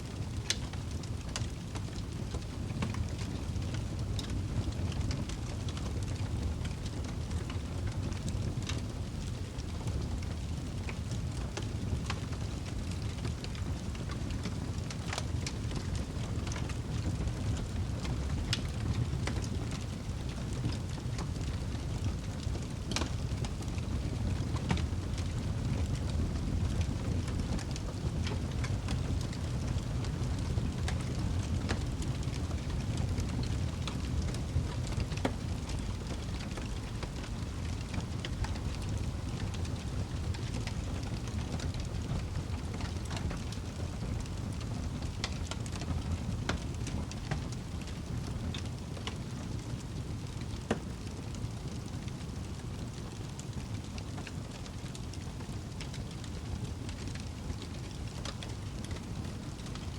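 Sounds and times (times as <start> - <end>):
fire flames rumbling: 0.0 - 59.9
logs crackling and popping: 0.0 - 59.9.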